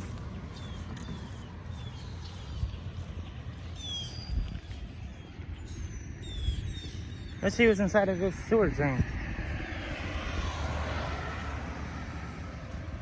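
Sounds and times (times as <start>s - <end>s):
steady low rumble: 0.0s - 13.0s
high falling bird chirps: 0.4s - 9.0s.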